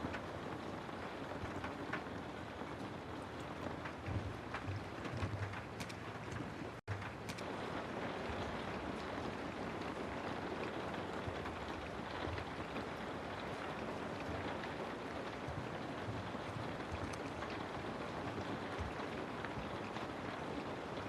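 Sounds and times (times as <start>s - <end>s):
raindrop ticks: 0.0s - 21.0s
rain hiss: 6.7s - 21.0s.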